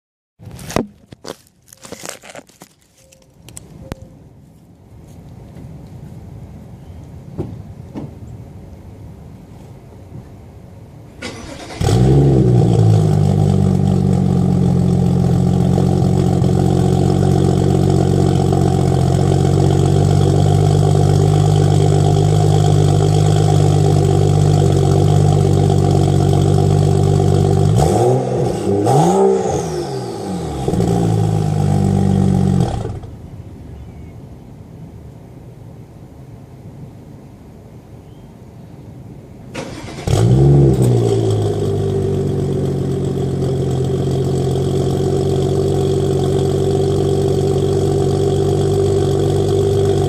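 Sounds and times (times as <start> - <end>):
car engine starting and idling: 11.1 - 33.3, 39.5 - 50.0
car engine revving: 11.2 - 33.1, 39.6 - 50.0.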